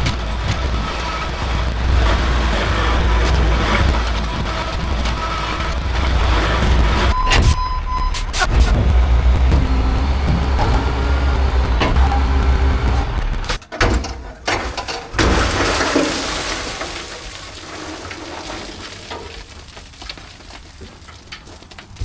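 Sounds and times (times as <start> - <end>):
diesel engine under load: 0.0 - 22.0
loose material pouring: 15.2 - 21.6.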